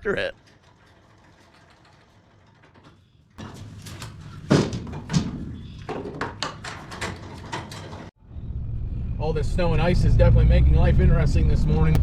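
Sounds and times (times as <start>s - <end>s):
sharp knocks and clunks: 0.4s - 8.2s
low rumble: 8.2s - 12.0s.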